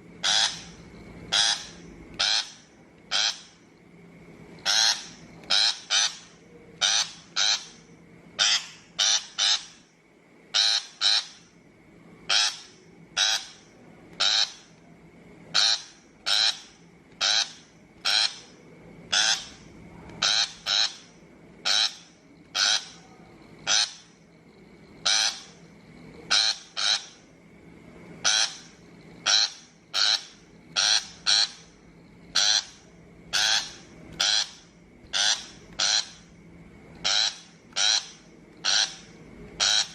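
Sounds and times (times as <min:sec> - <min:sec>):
bird harsh rasping calls: 0:00.2 - 0:03.6, 0:04.6 - 0:09.9, 0:10.5 - 0:11.5, 0:12.3 - 0:14.8, 0:15.5 - 0:23.0, 0:23.6 - 0:24.2, 0:25.0 - 0:25.6, 0:26.3 - 0:27.2, 0:28.2 - 0:36.3, 0:37.0 - 0:39.9.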